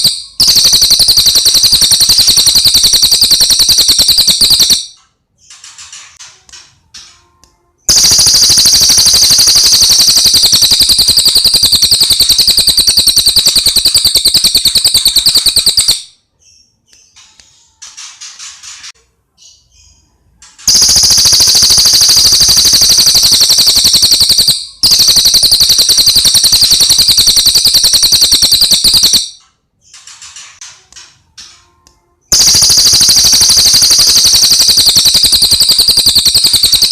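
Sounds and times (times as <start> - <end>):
fast high-pitched bird trills: 0.0 - 4.9, 7.9 - 16.2, 20.7 - 29.4, 32.3 - 36.9.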